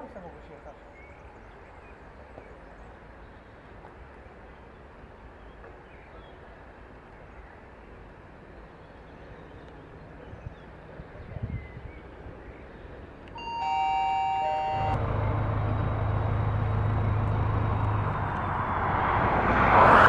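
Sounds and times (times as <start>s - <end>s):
low background rumble: 14.2s - 19.6s.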